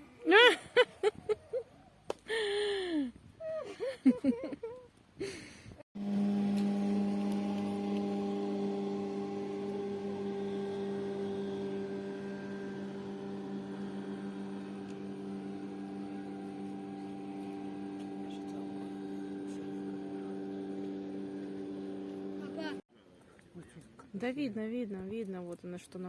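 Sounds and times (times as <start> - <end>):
low hum of held tones: 6.0 - 22.8.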